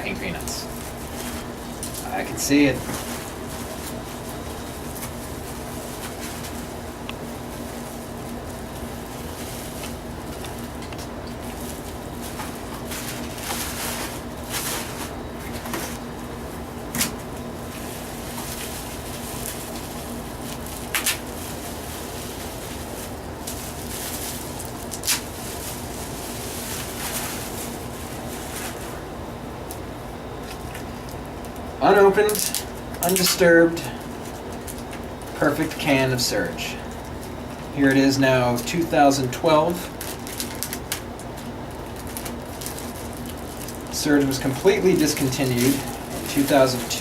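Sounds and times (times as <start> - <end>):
packing material rustling: 0.0 - 29.0, 30.4 - 35.8, 39.6 - 47.0
steady low hum: 0.0 - 47.0.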